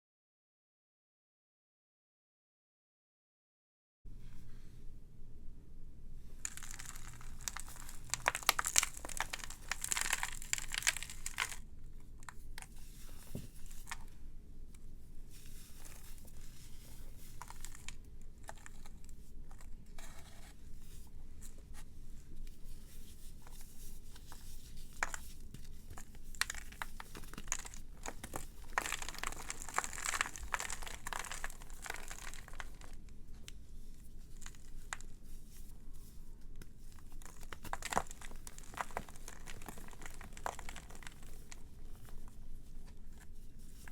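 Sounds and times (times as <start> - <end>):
dry material crackling: 6.4 - 14.0, 26.0 - 33.0, 37.0 - 42.4.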